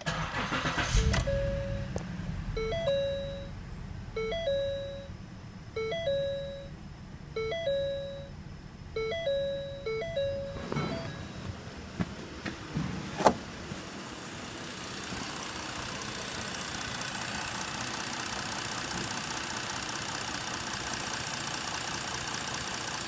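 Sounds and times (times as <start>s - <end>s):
car engine starting and idling: 0.0s - 23.0s
vehicle warning chime: 0.4s - 11.7s.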